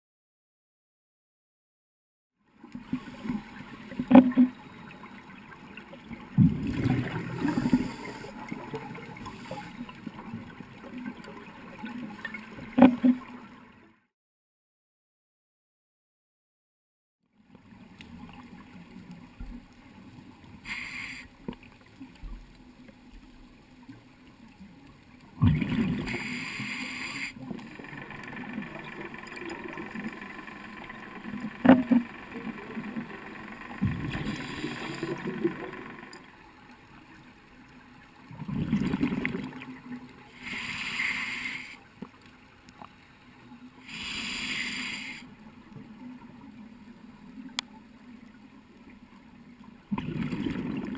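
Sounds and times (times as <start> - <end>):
bubbling rush on exhale: 6.4 - 9.7, 33.8 - 36.0, 38.4 - 39.6, 49.9 - 50.9
regulator hiss on inhale: 7.4 - 8.4, 20.6 - 21.4, 26.1 - 27.4, 34.2 - 35.2, 40.3 - 41.9, 43.8 - 45.3.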